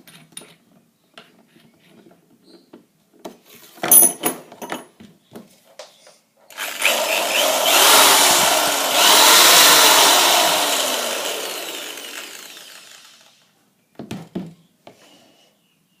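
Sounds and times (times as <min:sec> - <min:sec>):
electric drill winding down: 0:06.5 - 0:13.5.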